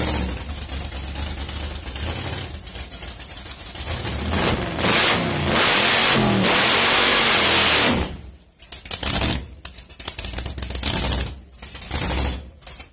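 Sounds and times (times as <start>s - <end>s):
rough uneven engine idle: 0.0s - 4.2s
car engine at full throttle: 0.0s - 12.6s.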